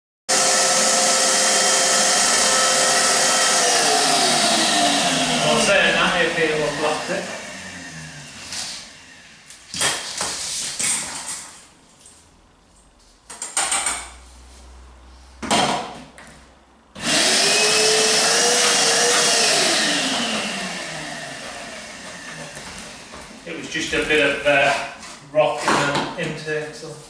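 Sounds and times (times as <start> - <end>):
vacuum cleaner running: 0.3 - 9.8, 17.0 - 24.8.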